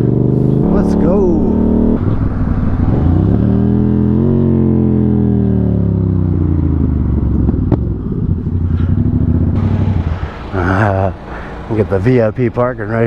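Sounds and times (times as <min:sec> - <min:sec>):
motorcycle engine pulling away: 0:00.0 - 0:13.0.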